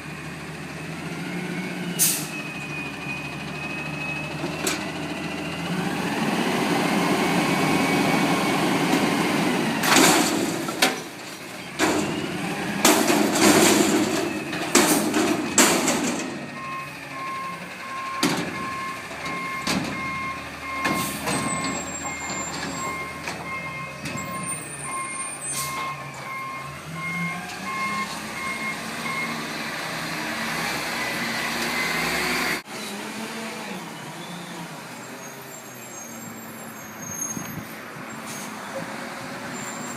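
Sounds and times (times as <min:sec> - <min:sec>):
garbage truck diesel engine: 0:00.0 - 0:39.9
reverse alarm beeping: 0:16.5 - 0:29.4.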